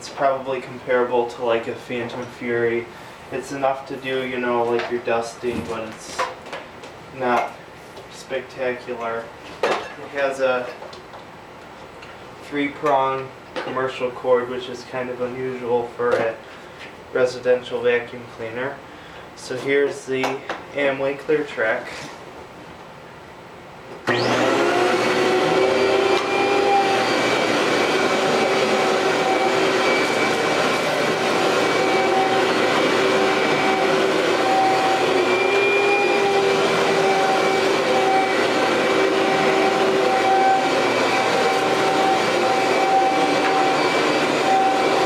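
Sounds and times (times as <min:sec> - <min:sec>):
vacuum cleaner motor whining: 0:24.0 - 0:45.0.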